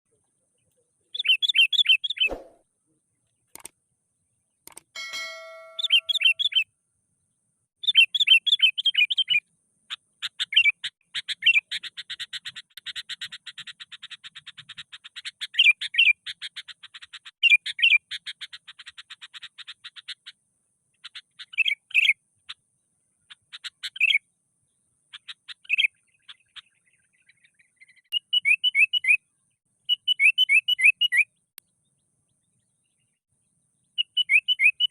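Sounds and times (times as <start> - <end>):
thump: 2.2 - 2.6
bird singing bright notes: 5.0 - 6.6, 34.0 - 34.9.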